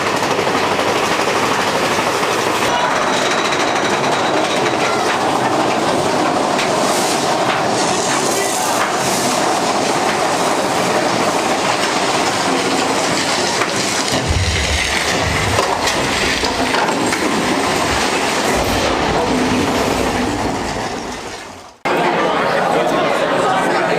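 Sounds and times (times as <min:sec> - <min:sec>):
roller coaster rattling on track: 0:00.0 - 0:21.8
deep low rumbles: 0:14.1 - 0:21.4.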